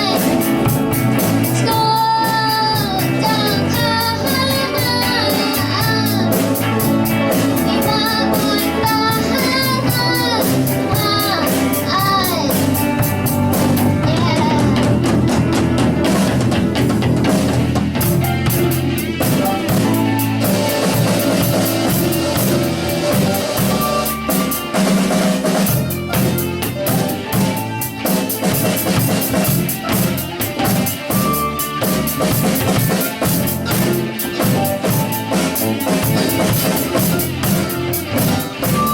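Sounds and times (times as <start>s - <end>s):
person singing: 0.0s - 12.9s, 14.0s - 15.0s
rock band playing live: 0.0s - 38.9s
steady drum beat: 0.0s - 38.9s.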